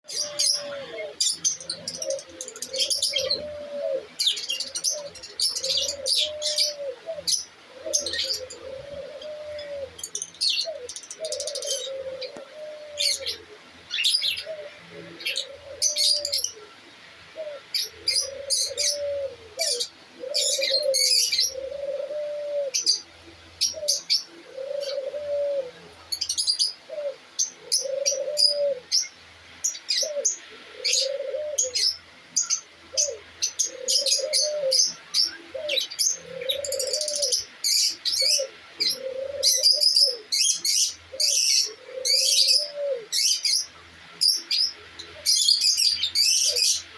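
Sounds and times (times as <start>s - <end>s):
dove cooing: 0.0s - 46.9s
small birds chirping: 0.0s - 46.9s.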